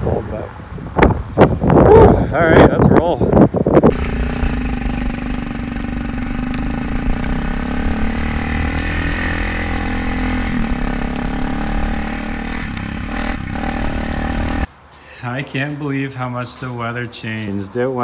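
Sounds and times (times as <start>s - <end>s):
dirt bike engine idling: 3.9s - 14.7s.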